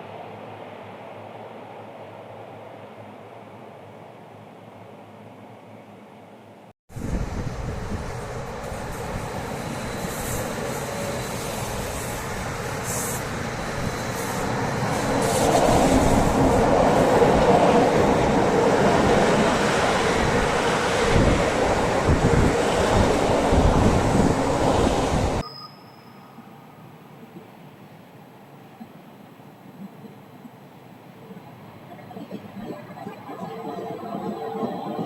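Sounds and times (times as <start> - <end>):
train wheels rumbling on rail: 7.0 - 25.4.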